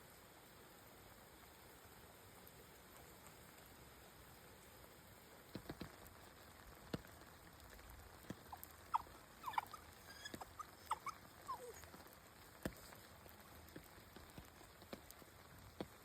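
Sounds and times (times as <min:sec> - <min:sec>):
dog whimpering: 0:08.9 - 0:12.0.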